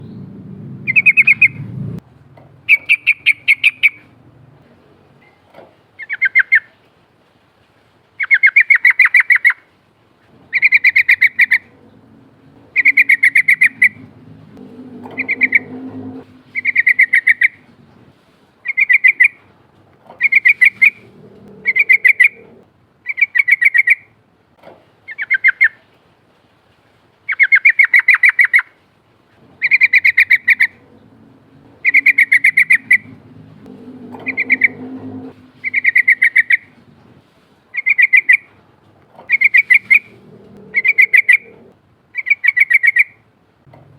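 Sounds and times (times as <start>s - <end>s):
bulbul singing rolling song: 0.0s - 4.5s, 10.5s - 19.5s, 20.1s - 24.2s, 29.5s - 38.6s, 39.2s - 43.3s.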